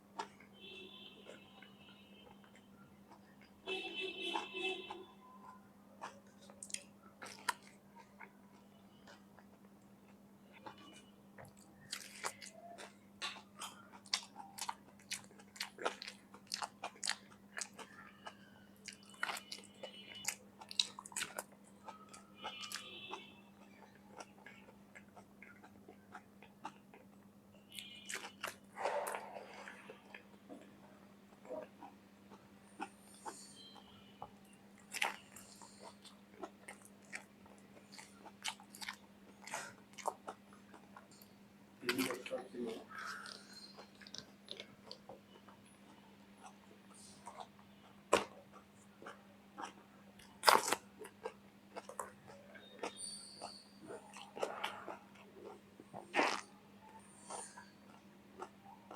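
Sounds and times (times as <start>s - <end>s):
crunching raw vegetables: 1.2s - 58.9s.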